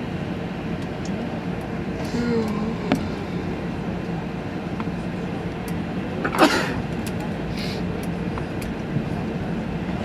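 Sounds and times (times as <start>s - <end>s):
airliner cabin hum: 0.0s - 10.0s.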